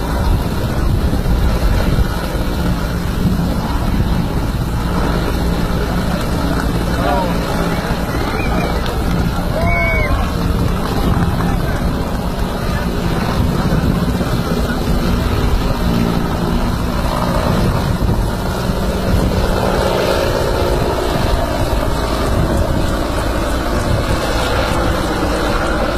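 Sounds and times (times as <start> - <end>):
helicopter rotor and engine: 0.0 - 25.9.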